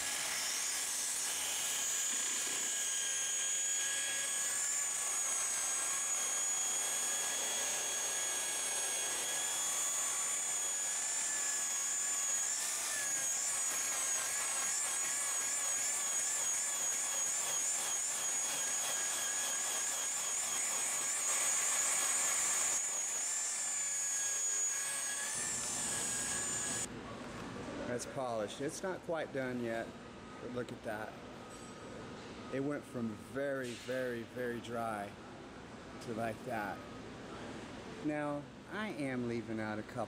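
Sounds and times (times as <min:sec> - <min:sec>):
electric polisher whining: 0:00.0 - 0:26.9.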